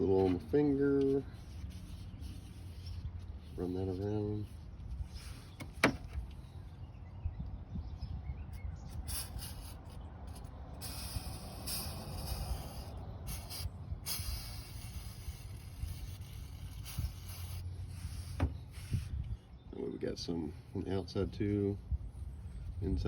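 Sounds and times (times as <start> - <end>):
rubbing and handling noise: 0.0 - 6.4, 13.3 - 19.4.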